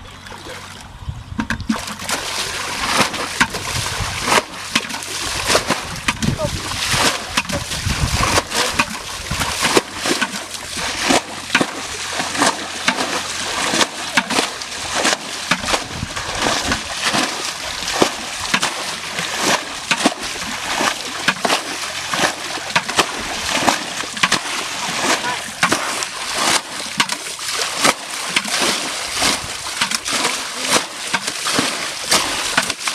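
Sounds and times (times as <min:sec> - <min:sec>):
water splashing and sloshing: 0:00.0 - 0:32.9.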